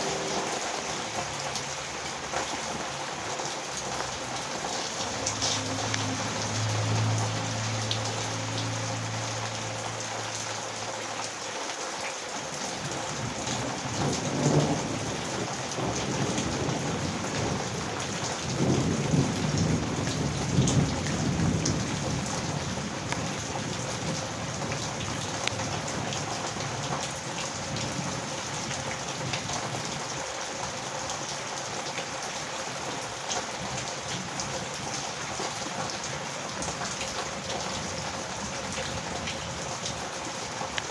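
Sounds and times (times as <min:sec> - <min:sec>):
heavy rain pouring: 0:00.0 - 0:40.9
thunder rumbling: 0:12.8 - 0:26.2.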